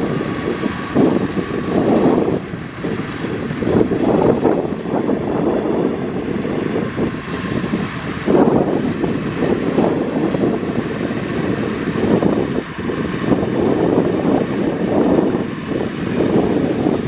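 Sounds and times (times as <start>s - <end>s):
heavy diesel machinery running: 0.0s - 17.0s.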